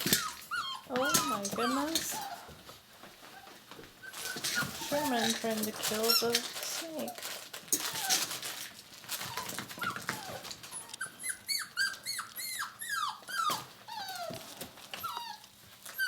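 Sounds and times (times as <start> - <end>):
puppy whining and yelping: 0.0 - 2.7, 3.3 - 5.4, 7.8 - 8.5, 9.2 - 16.0.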